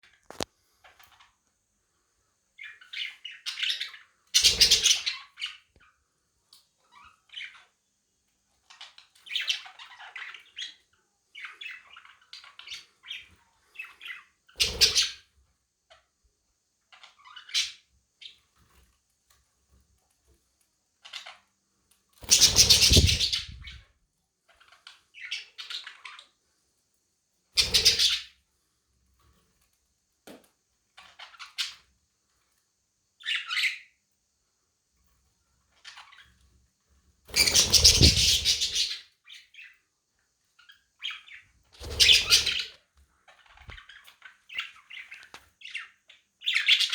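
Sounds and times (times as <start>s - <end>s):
budgerigars chirping and chattering: 2.6s - 5.7s, 6.8s - 7.7s, 8.6s - 15.2s, 16.9s - 18.4s, 22.2s - 23.8s, 24.6s - 26.3s, 27.6s - 28.3s, 33.2s - 33.8s, 37.3s - 39.8s, 40.6s - 46.9s.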